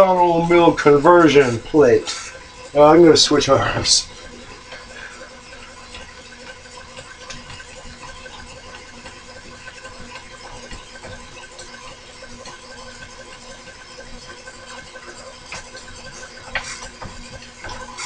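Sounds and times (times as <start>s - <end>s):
steady machine hum: 0.0s - 18.0s
ticks and scrapes of hand work: 5.9s - 18.0s.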